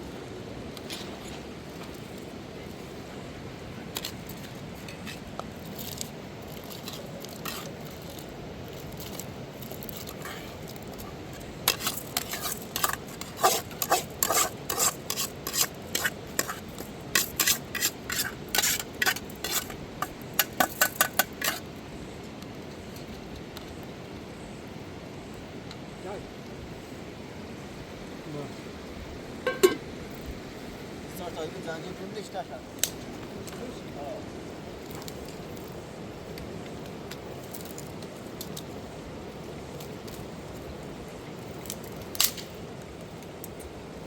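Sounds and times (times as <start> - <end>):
utensil scraping a pot: 4.8 - 8.3, 8.9 - 21.7.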